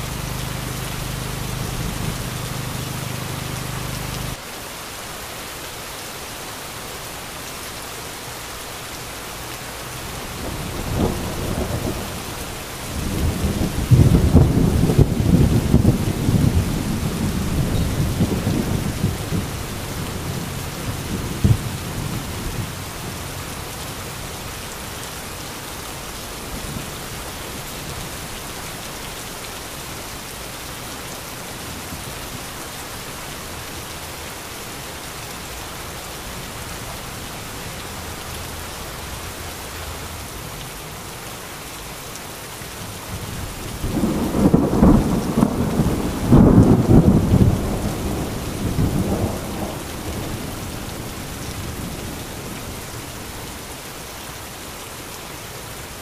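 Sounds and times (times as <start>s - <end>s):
thunder rumbling: 0.0s - 4.4s, 10.4s - 23.7s, 43.1s - 52.0s
heavy rain falling: 0.0s - 56.0s.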